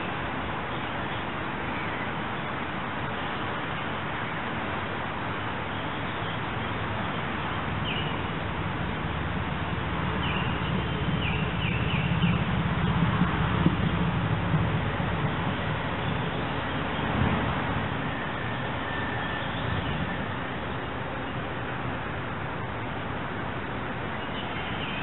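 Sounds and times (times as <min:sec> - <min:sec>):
birds chirping: 0:10.2 - 0:12.5.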